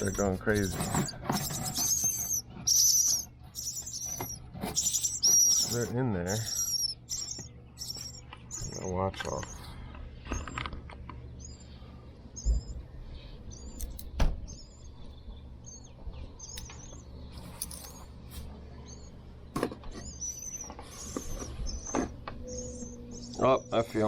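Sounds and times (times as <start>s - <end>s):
nestlings chirping: 0.0s - 24.0s
sharp knocks on vent: 14.2s - 14.4s.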